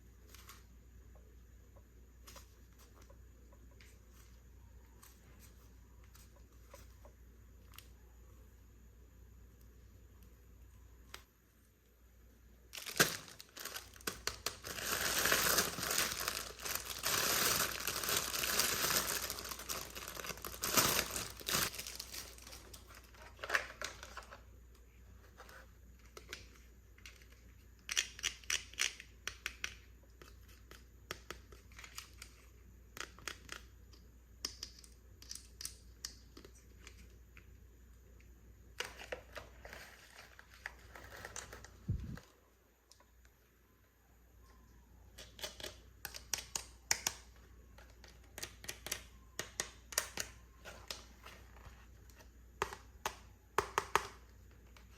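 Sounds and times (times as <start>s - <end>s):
packaging crinkling and tearing: 12.7s - 24.3s.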